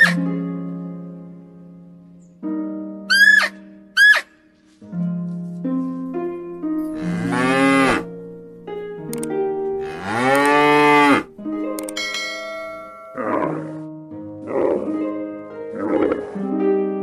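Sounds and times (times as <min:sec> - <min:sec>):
background music: 0:00.0 - 0:17.0
cattle mooing: 0:07.0 - 0:08.1, 0:09.8 - 0:11.3, 0:13.1 - 0:15.0, 0:15.7 - 0:16.4.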